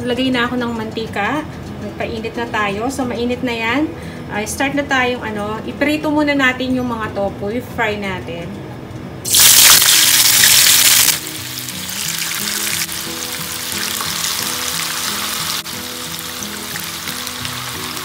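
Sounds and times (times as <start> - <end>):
tofu sizzling in hot oil: 9.3 - 18.0.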